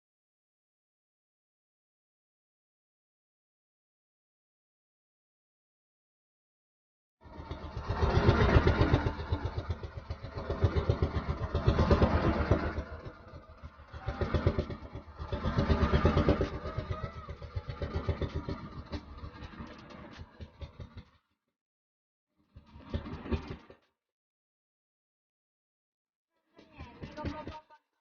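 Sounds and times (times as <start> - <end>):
small engine pulsing: 7.2 - 21.3, 22.4 - 23.8, 26.5 - 27.8.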